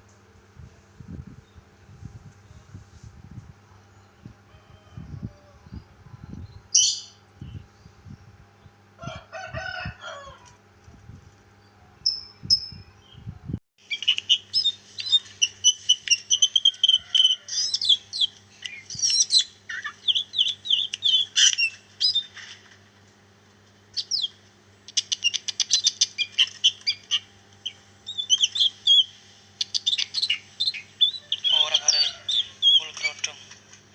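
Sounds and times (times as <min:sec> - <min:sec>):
songbird singing chirps and trills: 0:03.5 - 0:09.1, 0:11.5 - 0:22.4, 0:23.9 - 0:33.5.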